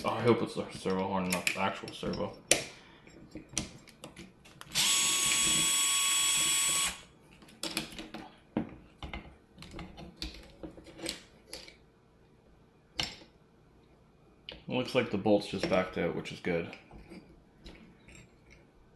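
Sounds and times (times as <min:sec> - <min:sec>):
electric screwdriver spinning: 0:04.7 - 0:07.1.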